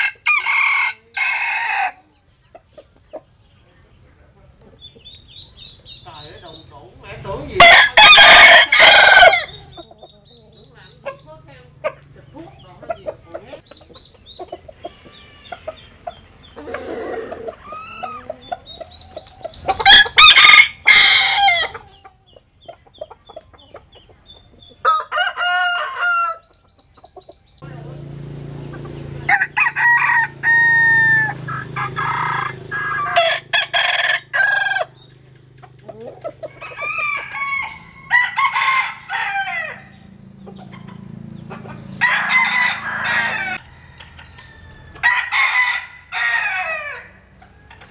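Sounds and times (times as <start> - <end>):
roosters crowing: 0.0 - 3.6, 4.8 - 47.9
chicken clucking: 1.9 - 7.6, 9.4 - 20.2, 21.4 - 29.3, 31.2 - 38.1, 39.8 - 45.1, 46.8 - 47.9.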